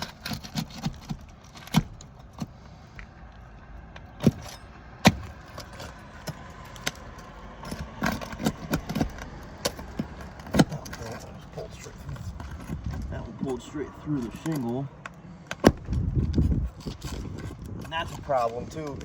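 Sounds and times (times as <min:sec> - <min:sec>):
hand tool tapping shingles: 0:00.0 - 0:03.1, 0:04.0 - 0:13.1.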